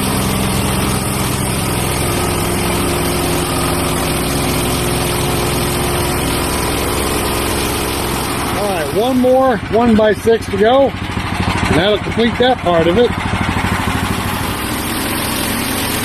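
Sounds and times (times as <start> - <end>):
band blade cutting log: 0.0 - 9.3
sawmill gas engine running: 0.0 - 16.0
steady whine: 0.0 - 16.0.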